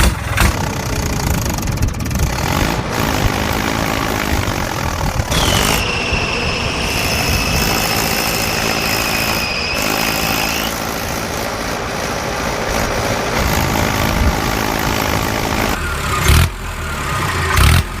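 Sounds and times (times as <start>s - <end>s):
tractor engine running: 0.0s - 18.0s
high whistle-like tone: 5.3s - 10.9s.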